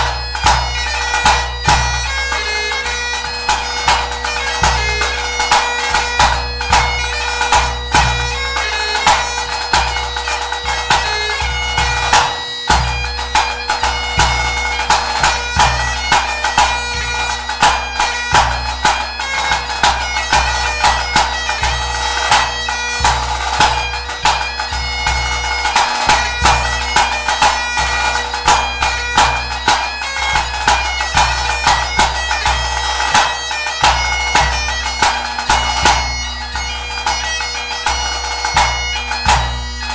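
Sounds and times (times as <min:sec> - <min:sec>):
bagpipe playing a tune: 0:00.0 - 0:39.9.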